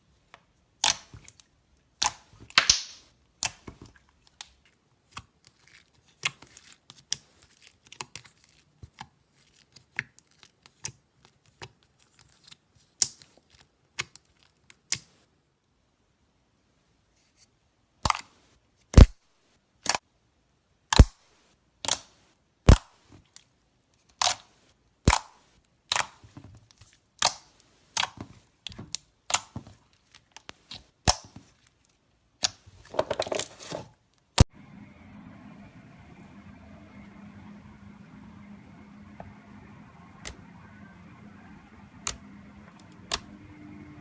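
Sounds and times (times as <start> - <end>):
slime squeezed and popping: 2.0 - 3.6.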